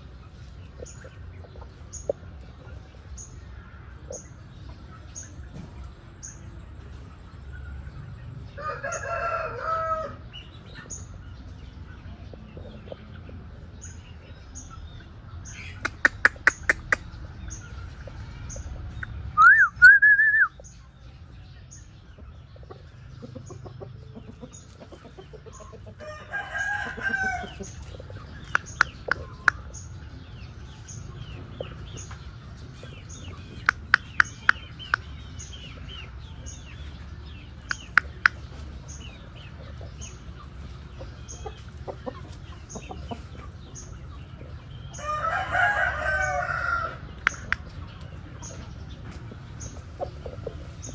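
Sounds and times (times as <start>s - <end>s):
rooster crowing: 8.6s - 10.2s, 26.0s - 27.6s, 45.0s - 47.5s
sharp clicks: 15.8s - 17.0s, 28.4s - 29.6s, 33.6s - 35.1s, 37.7s - 38.4s, 47.2s - 47.7s.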